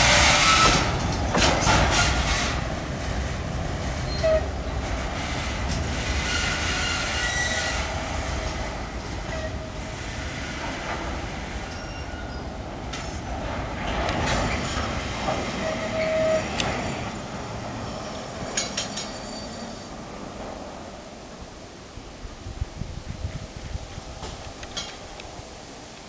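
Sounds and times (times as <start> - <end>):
train rumble: 0.0 - 26.0
brief squeal: 11.7 - 12.4, 15.6 - 16.5, 17.8 - 20.0.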